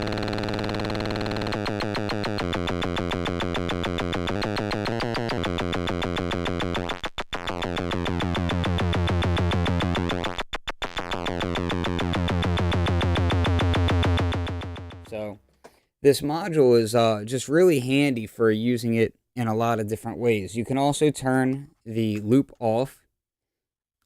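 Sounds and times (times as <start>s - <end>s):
synthesizer oscillator droning: 0.0s - 15.2s.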